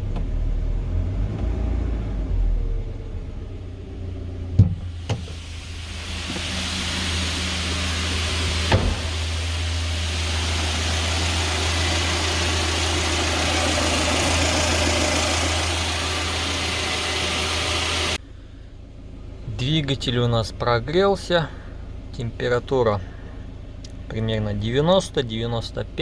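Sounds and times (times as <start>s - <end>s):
short thump: 4.6s - 5.4s, 8.6s - 9.2s
petrol engine idling: 4.8s - 19.4s.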